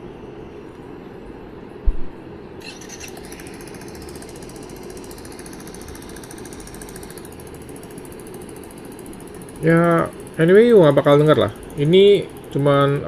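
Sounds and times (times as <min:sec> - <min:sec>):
background hum: 0:00.0 - 0:13.0
low thump: 0:01.8 - 0:02.1
fast mechanical ticking: 0:02.7 - 0:13.0.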